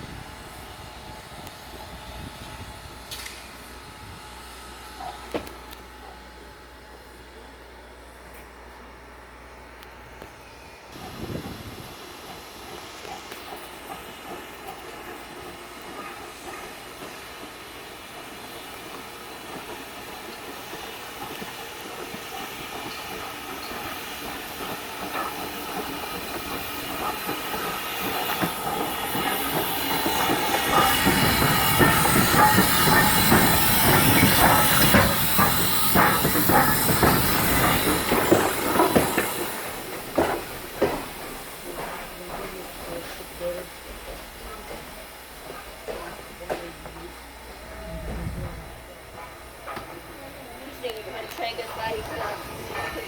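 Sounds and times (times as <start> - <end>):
hissing steam: 10.9 - 53.0
knocks and clanks: 24.6 - 47.3.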